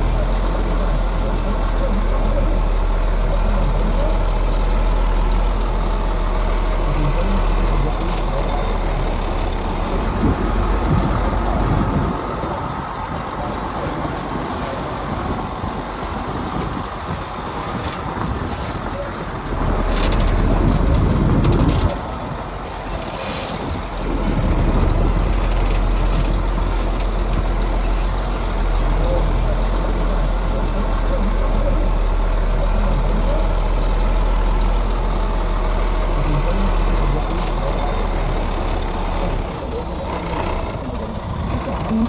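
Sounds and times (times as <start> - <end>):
heavy construction machinery engine: 0.0 - 42.0.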